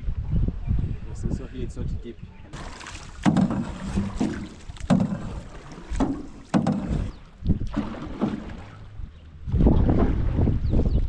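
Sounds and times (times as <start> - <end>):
canoe paddles splashing in water: 2.6 - 10.5.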